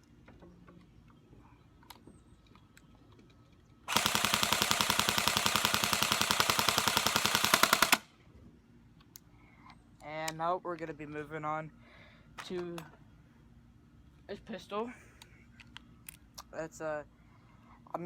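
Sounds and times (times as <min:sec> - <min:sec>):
airsoft rifle full-auto burst: 0:03.9 - 0:08.1.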